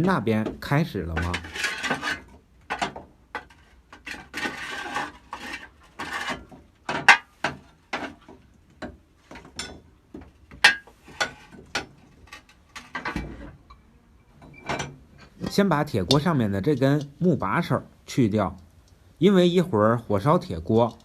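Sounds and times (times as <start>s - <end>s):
metal kitchen hardware clinking: 10.6s - 17.2s.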